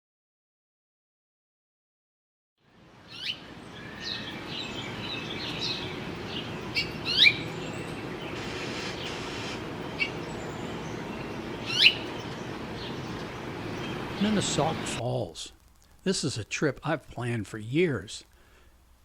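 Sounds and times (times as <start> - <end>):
low rushing background noise: 2.6 - 19.0
birds chirping: 2.7 - 15.3
sharp down-slurred bird calls: 3.0 - 15.0.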